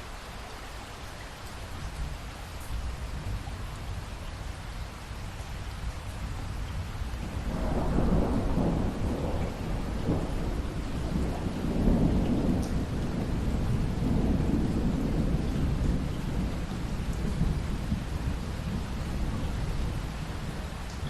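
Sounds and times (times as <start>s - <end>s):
steady rain: 0.0s - 21.0s
rolling thunder: 7.2s - 21.0s.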